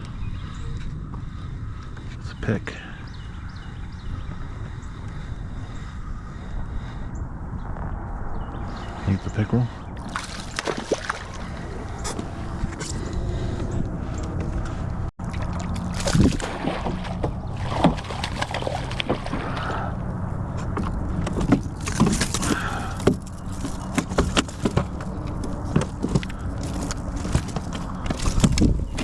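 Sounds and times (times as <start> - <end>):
steady low hum: 9.7 - 28.5.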